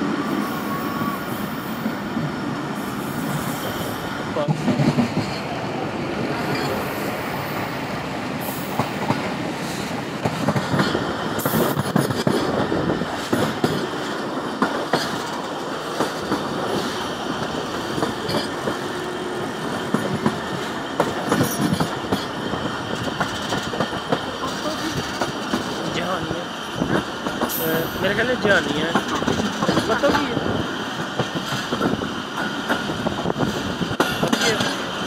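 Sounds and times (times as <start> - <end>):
train rumble and rushing air: 0.0 - 35.0
wheels clattering over rail joints: 31.1 - 34.9.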